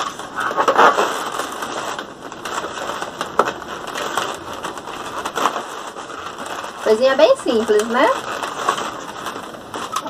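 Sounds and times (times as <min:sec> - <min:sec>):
balloons rubbing and rustling: 0:00.0 - 0:10.0.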